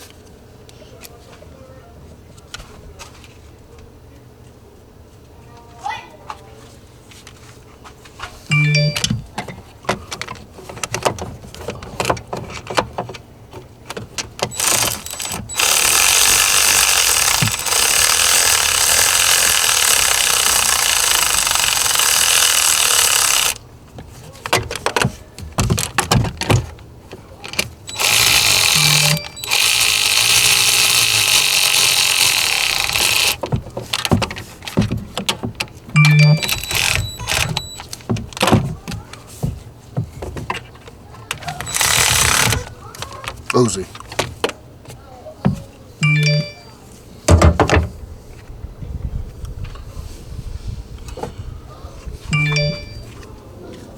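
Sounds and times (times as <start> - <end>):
loud steady tool noise: 14.5 - 23.6, 27.9 - 33.4, 41.6 - 42.7.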